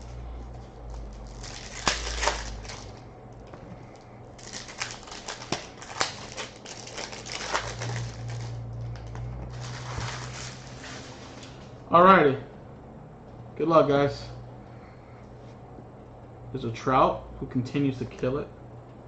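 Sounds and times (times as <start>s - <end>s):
low steady hum: 0.0s - 19.0s
card pack wrappers tearing: 0.9s - 3.0s, 4.4s - 11.6s
cards shuffled by hand: 4.4s - 11.5s.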